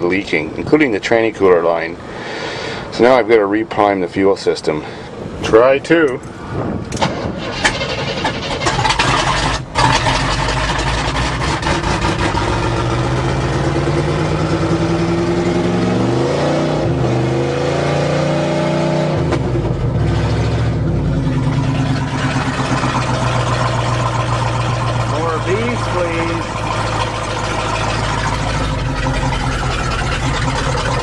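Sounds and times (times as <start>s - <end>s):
truck engine cranking: 6.1s - 17.8s, 19.1s - 31.0s
truck engine running and revving: 6.5s - 31.0s.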